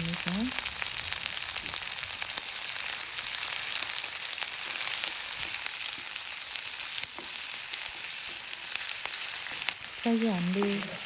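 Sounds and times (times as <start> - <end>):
onions sizzling in oil: 0.0 - 11.0
small pops and crackles: 0.0 - 11.0.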